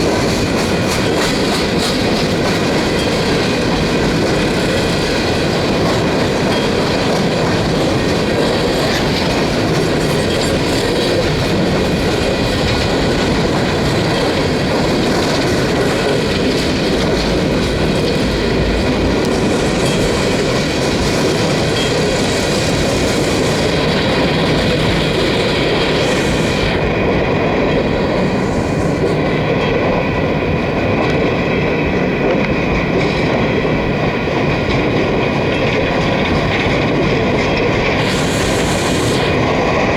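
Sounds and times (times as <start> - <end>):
clickety-clack over rail joints: 0.0 - 39.9
wheel and rail rumble: 0.0 - 39.9
hiss: 19.3 - 27.0, 27.7 - 29.3, 37.8 - 39.9
high wheel squeal: 19.5 - 27.0, 37.9 - 39.9.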